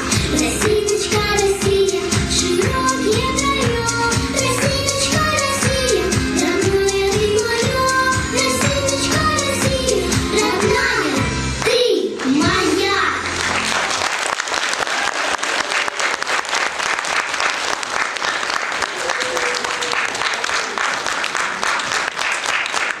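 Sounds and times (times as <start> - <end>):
person singing: 0.0 - 11.3
backing music: 0.0 - 11.7, 12.3 - 14.1
audience applauding: 13.2 - 23.0.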